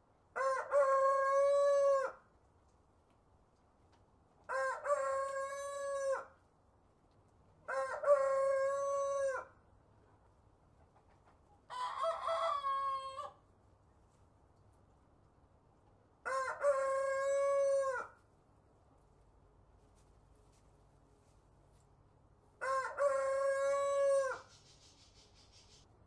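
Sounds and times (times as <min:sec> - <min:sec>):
rooster crowing: 0:00.4 - 0:02.2, 0:04.5 - 0:06.3, 0:07.7 - 0:09.5, 0:11.7 - 0:13.4, 0:16.2 - 0:18.2, 0:22.6 - 0:24.5.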